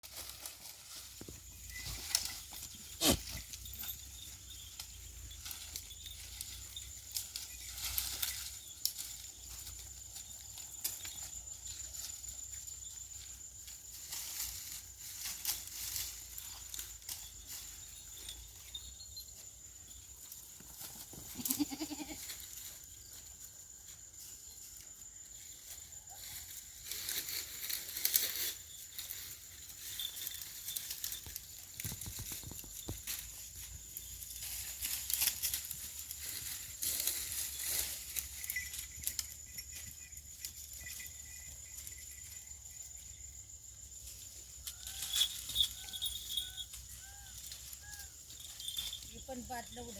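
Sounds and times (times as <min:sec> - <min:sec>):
goat bleating: 0:03.0 - 0:03.4, 0:21.3 - 0:22.4
rustling and clicking: 0:26.8 - 0:41.0.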